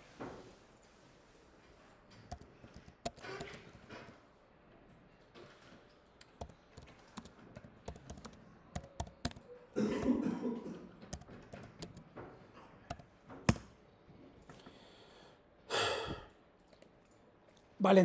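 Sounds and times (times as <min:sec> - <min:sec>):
keyboard key clicks: 0:02.3 - 0:03.8, 0:06.2 - 0:09.5, 0:11.1 - 0:12.1, 0:12.9 - 0:13.7.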